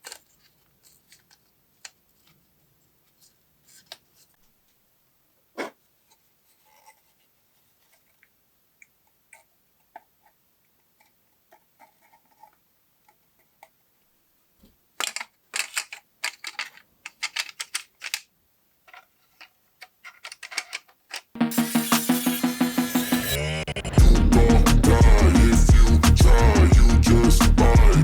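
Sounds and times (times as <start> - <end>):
clicks of small parts handled: 15.0 - 21.3.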